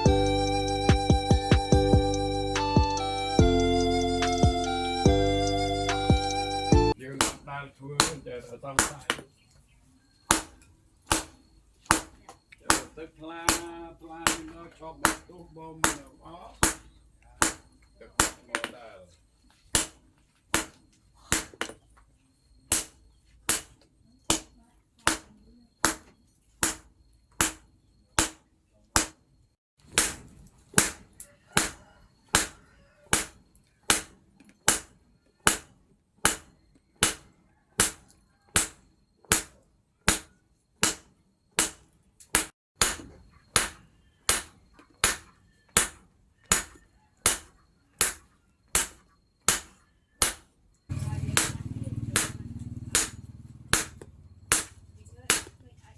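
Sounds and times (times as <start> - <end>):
hammer striking steel on anvil: 7.1 - 9.2, 10.3 - 18.8, 19.7 - 20.0, 20.6 - 21.8, 22.7 - 24.5, 25.1 - 28.4, 29.0 - 29.2, 29.9 - 55.6.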